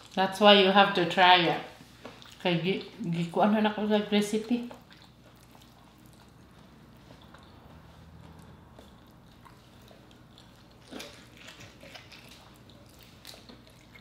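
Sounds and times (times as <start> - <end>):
faint steady hum: 0.0 - 14.0
wet chewing smacks and clicks: 2.0 - 3.3, 4.4 - 14.0.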